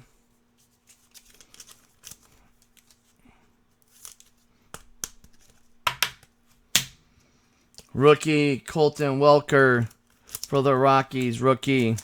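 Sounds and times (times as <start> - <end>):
cards rustling and sliding: 0.6 - 3.2, 3.8 - 7.0, 9.8 - 12.0.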